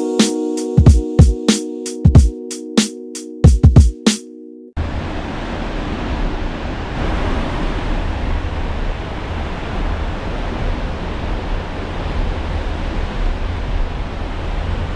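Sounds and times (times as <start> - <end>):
wind buffeting microphone: 4.8 - 14.9.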